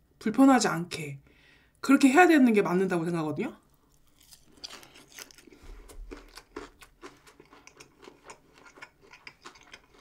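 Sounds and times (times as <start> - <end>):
crisp chewing crunches: 3.7 - 10.0.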